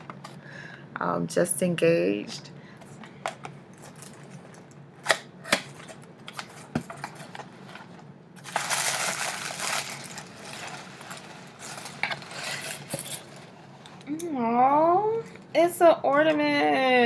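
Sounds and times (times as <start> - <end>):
paper crinkling and rustling: 6.3 - 13.7.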